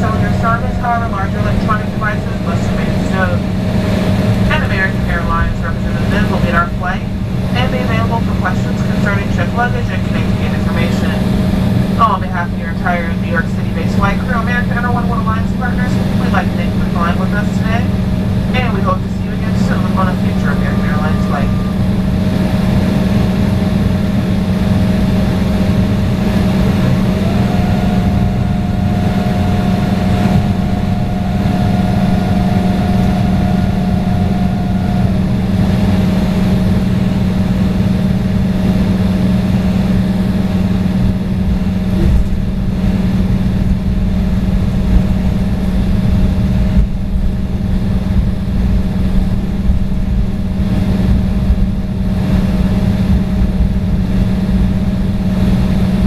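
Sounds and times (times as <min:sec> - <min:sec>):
jet cabin drone: 0:00.0 - 0:56.0.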